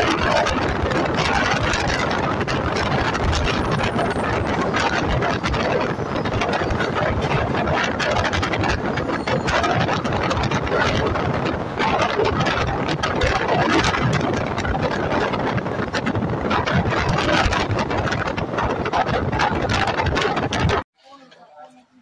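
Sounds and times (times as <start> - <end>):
rattles and clicks: 0.0 - 20.8
train wheels rumbling on track: 0.0 - 20.8
rushing air: 0.0 - 20.9.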